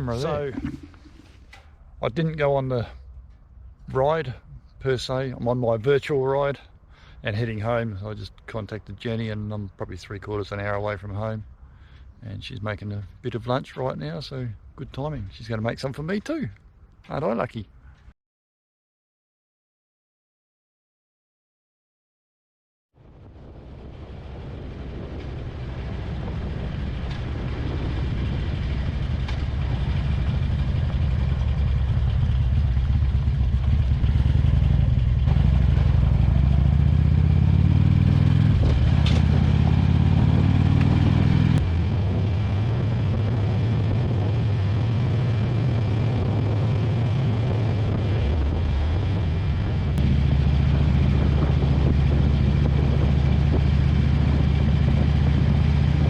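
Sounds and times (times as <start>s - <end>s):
motorcycle engine running: 0.0s - 1.8s, 27.0s - 56.0s.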